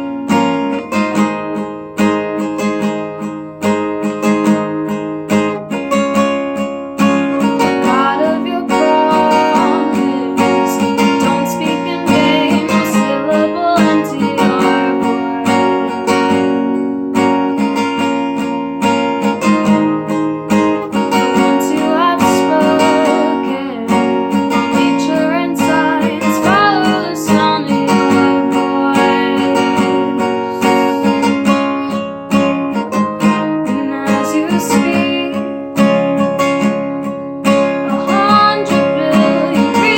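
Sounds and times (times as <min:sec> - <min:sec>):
strummed acoustic guitar: 0:00.0 - 0:39.9
person singing: 0:07.3 - 0:16.3, 0:20.8 - 0:32.2, 0:32.8 - 0:35.6, 0:37.7 - 0:39.9.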